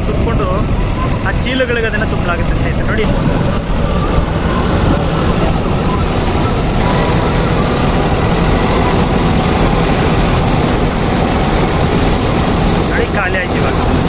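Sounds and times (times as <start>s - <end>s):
combine harvester running: 0.0s - 14.0s
low engine drone: 0.0s - 14.0s.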